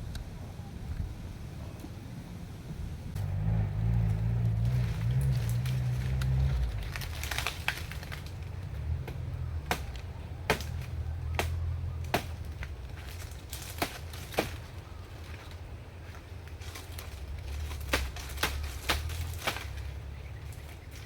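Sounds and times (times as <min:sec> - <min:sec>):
steady low rumble: 0:00.0 - 0:21.0
light crackly ticks: 0:03.9 - 0:14.4
sharp chopping knocks: 0:09.0 - 0:12.7.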